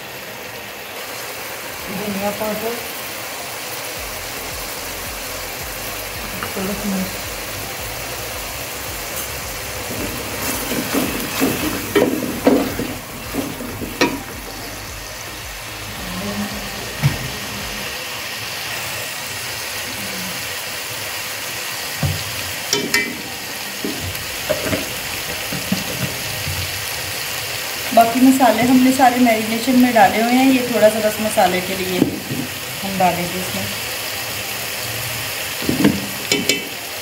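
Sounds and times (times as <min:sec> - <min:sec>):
masala sizzling in hot oil: 0:00.0 - 0:37.0
wooden spatula scraping a pot: 0:09.9 - 0:14.3.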